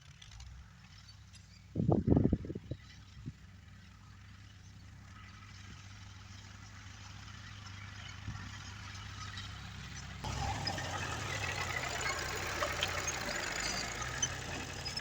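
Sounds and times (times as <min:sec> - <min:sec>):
engine running low: 0:01.3 - 0:15.0.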